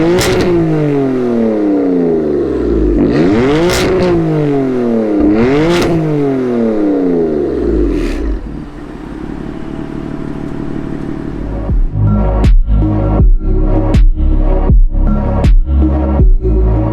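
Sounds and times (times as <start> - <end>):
exhaust cracks: 0.0 - 12.9
car engine revving and idling: 0.0 - 14.5.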